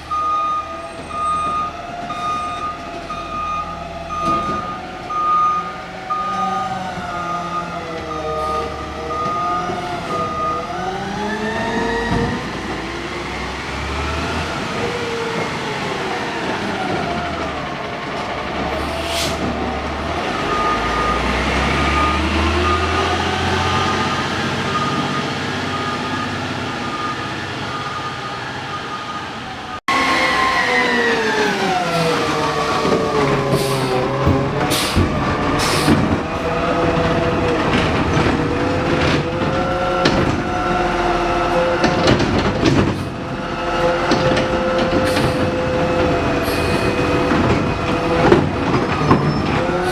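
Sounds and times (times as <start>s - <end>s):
reversing beeper: 0.0s - 12.8s, 20.2s - 37.0s
garbage truck engine revving: 0.0s - 49.9s.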